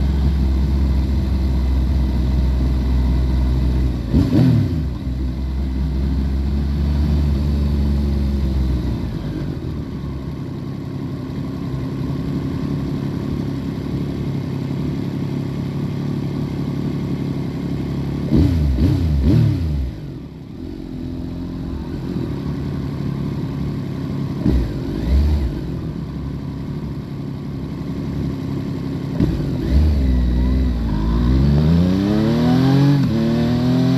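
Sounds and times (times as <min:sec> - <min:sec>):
muffled motorcycle engine revving: 0:00.0 - 0:10.4, 0:18.2 - 0:33.9.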